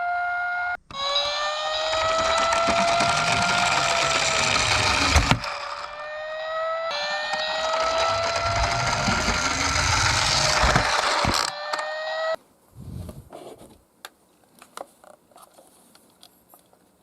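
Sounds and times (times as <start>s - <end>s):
siren wailing: 0.0s - 12.4s
toy car rolling down slope: 0.9s - 11.9s.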